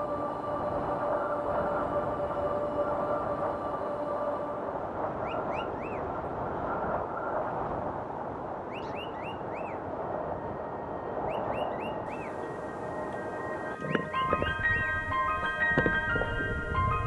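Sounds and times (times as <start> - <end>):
small bird chirping: 8.7 - 9.8, 11.3 - 12.4.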